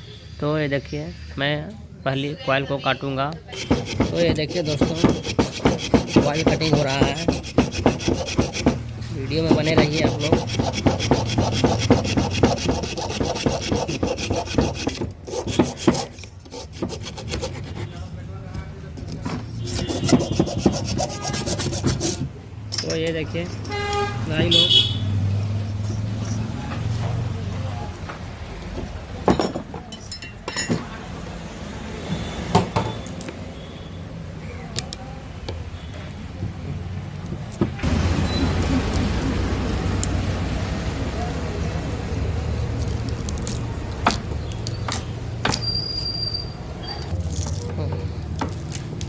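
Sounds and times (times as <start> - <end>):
coil being cut by hand: 3.5 - 18.0, 19.5 - 22.3
hand tools clicking and clinking: 18.9 - 24.0, 28.6 - 31.0.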